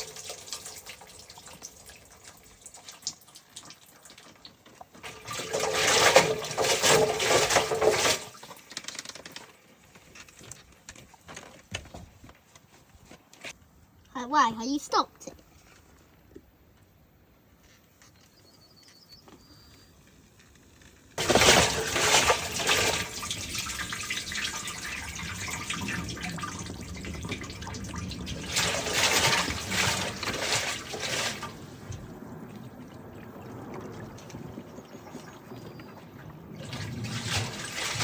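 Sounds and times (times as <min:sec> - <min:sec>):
water gushing out: 0:00.0 - 0:04.1, 0:05.0 - 0:08.6, 0:21.2 - 0:38.0.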